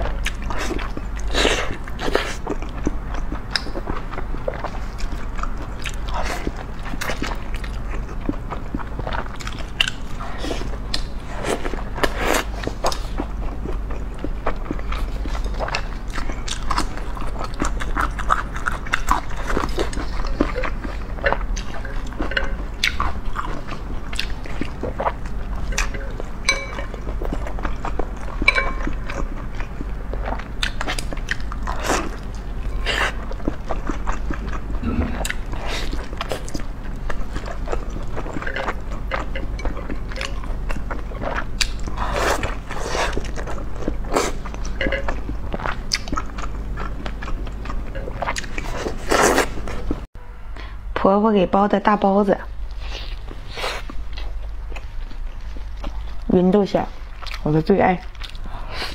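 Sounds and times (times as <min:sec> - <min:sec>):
close chewing and smacking: 0:00.0 - 0:50.1, 0:52.6 - 0:58.9
low hum: 0:34.4 - 0:41.3.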